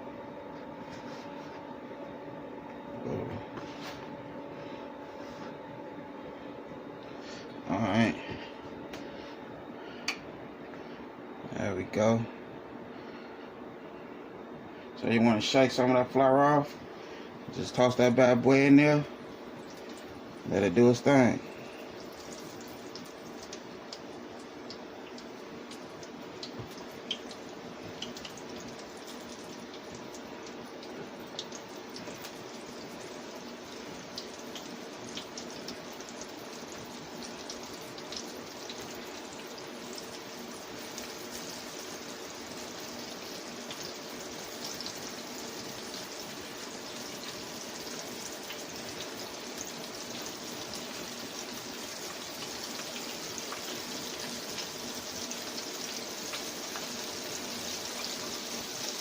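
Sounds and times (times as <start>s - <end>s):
chicken frying in hot oil: 17.6s - 59.0s.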